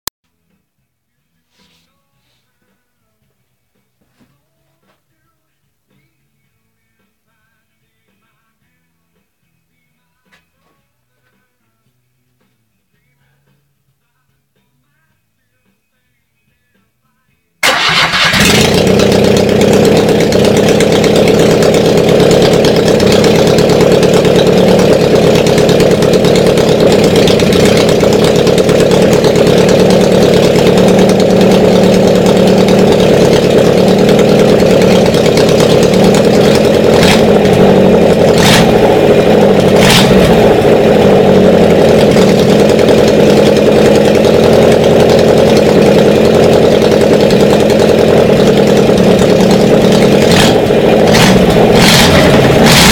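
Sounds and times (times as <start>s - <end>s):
air-cooled engine idling: 17.6s - 52.9s.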